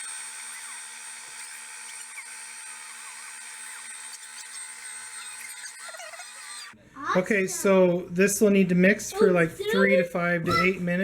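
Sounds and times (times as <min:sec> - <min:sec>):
pasta maker motor whining: 0:00.0 - 0:06.8.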